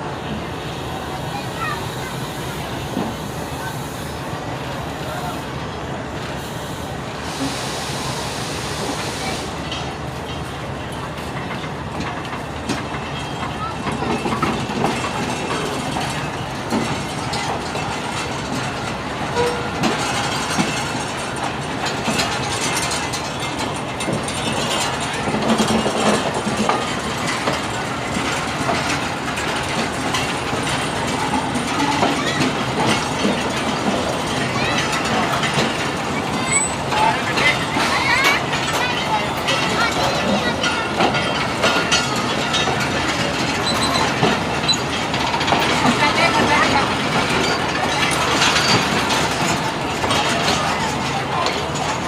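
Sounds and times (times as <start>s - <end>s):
train wheels rumbling on rails: 0.0s - 52.0s
wheels clicking over rail joints: 0.1s - 52.0s
strong hiss: 6.2s - 9.6s.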